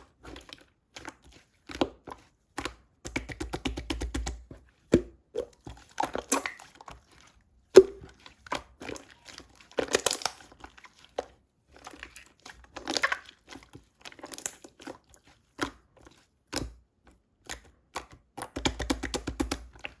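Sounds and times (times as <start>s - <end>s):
slime crackling and popping: 5.4s - 6.6s, 7.8s - 10.6s, 12.0s - 15.0s.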